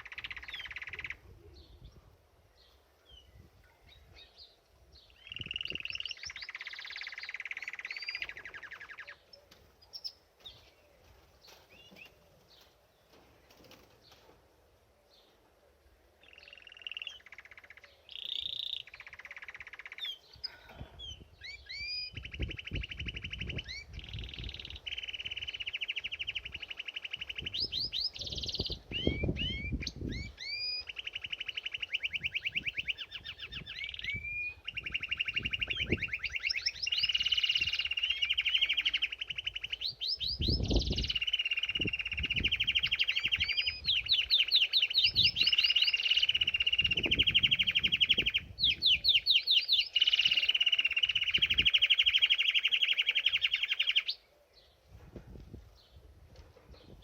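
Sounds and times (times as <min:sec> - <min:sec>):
canary singing: 0:00.0 - 0:01.8, 0:05.1 - 0:10.2, 0:16.2 - 0:20.5, 0:21.1 - 0:54.3.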